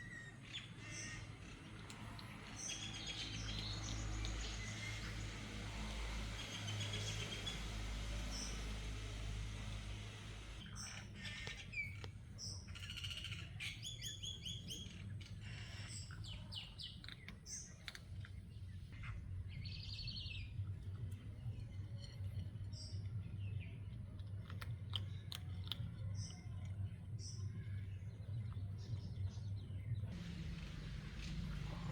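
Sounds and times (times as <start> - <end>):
birds chirping and singing: 0.0 - 24.0, 25.0 - 31.9
steady low hum: 20.3 - 31.9.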